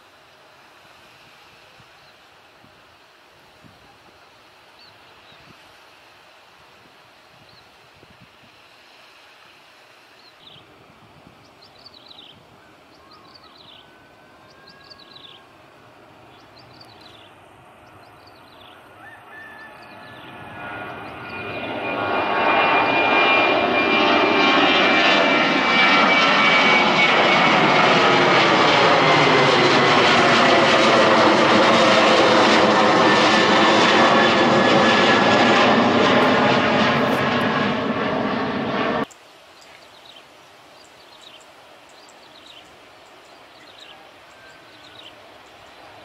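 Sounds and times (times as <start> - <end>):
jet engines roaring: 19.7 - 39.1.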